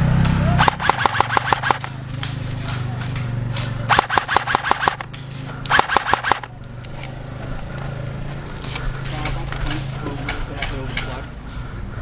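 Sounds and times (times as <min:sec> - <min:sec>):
low hum: 0:00.0 - 0:07.6
airsoft gun firing bursts: 0:00.6 - 0:02.0, 0:03.9 - 0:05.1, 0:05.7 - 0:06.5.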